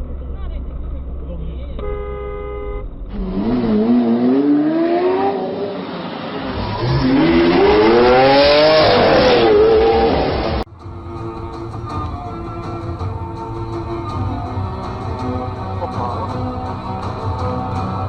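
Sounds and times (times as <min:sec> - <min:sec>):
car engine revving: 0:02.8 - 0:10.7.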